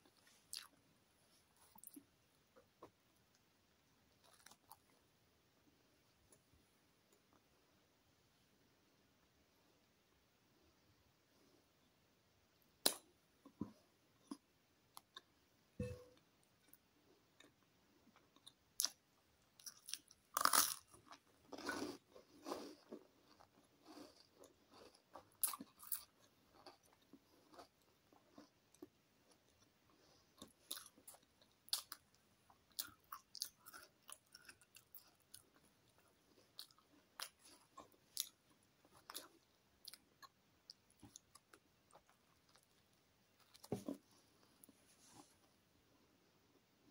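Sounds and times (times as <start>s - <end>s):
crunching bread crust: 19.6s - 29.6s.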